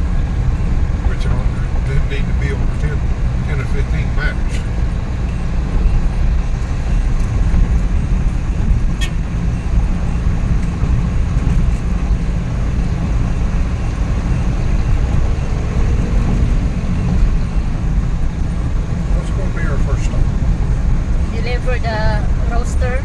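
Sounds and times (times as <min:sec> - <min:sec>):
road and tyre noise: 0:00.0 - 0:23.0
van engine running: 0:00.0 - 0:23.0.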